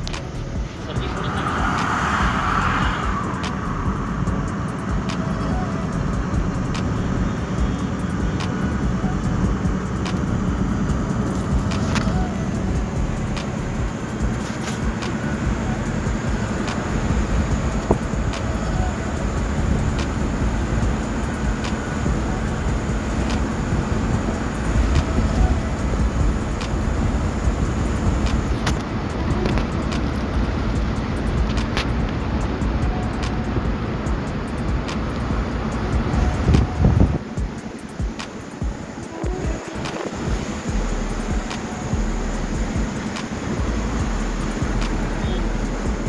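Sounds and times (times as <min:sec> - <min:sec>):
car road and engine rumble: 0:00.0 - 0:46.0.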